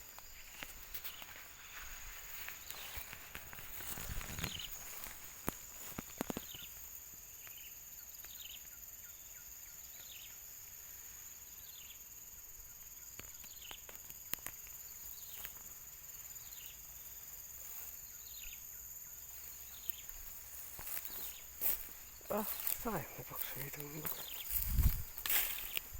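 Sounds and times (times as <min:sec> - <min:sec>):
high insect drone: 0:00.0 - 0:25.9
faint clicks: 0:13.2 - 0:15.6
bird chirping: 0:18.0 - 0:25.9.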